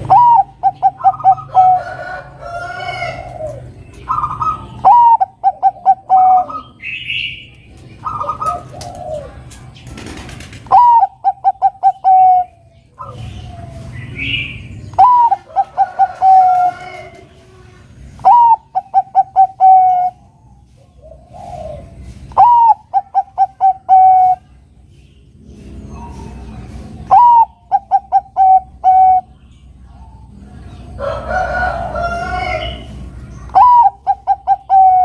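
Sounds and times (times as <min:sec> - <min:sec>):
dove cooing song: 0:00.0 - 0:24.6, 0:25.8 - 0:35.0
rough bird calls: 0:00.0 - 0:35.0.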